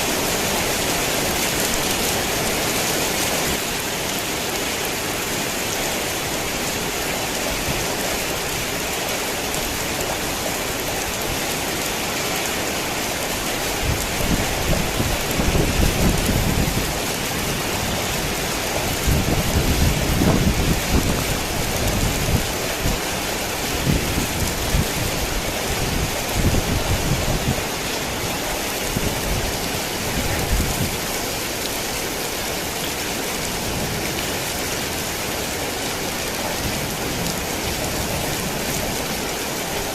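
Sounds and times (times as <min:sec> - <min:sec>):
heavy rain falling: 0:00.0 - 0:39.9
thunder rumbling: 0:13.8 - 0:23.2.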